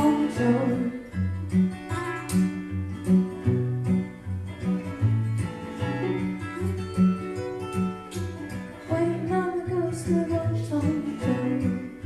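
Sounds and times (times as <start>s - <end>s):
acoustic guitar picking: 0.0s - 12.0s.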